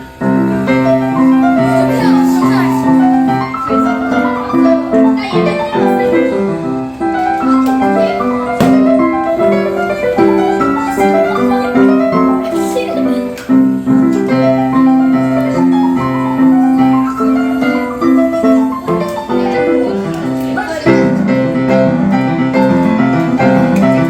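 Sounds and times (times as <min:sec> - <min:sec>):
solo piano: 0:00.0 - 0:24.0.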